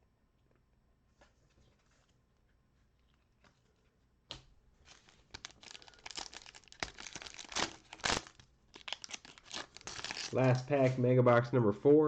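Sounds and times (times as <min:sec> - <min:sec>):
wrapper ripping: 0:04.8 - 0:10.6
wrapper crinkling: 0:04.8 - 0:10.7.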